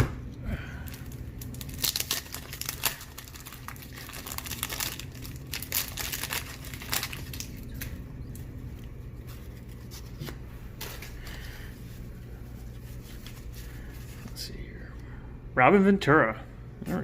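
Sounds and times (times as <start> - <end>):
steady low hum: 0.0 - 17.0
card packs crinkling and rustling: 0.8 - 14.4.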